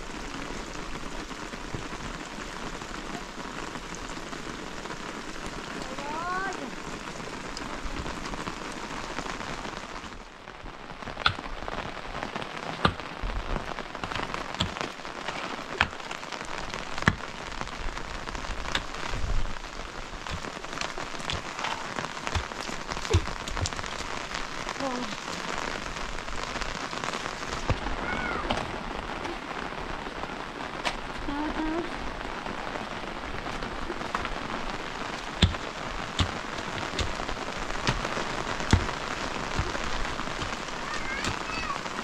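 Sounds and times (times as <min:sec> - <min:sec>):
rain falling: 0:00.0 - 0:42.0
heavy drops tapping: 0:35.2 - 0:41.4.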